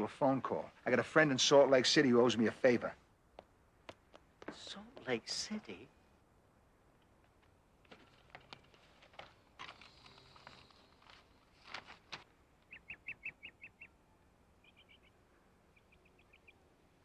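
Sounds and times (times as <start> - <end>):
soft clicks and rustles: 6.9 - 12.8
faint bird chirps: 12.6 - 17.0.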